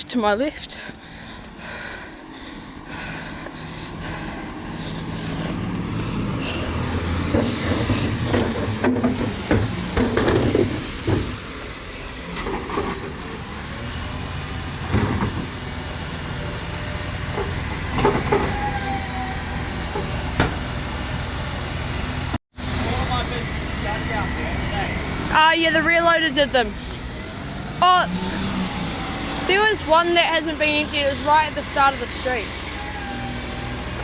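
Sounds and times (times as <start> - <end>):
garbage truck engine running: 0.0 - 34.0
bins knocking and clanking: 7.2 - 11.4, 14.9 - 15.6, 17.3 - 18.7.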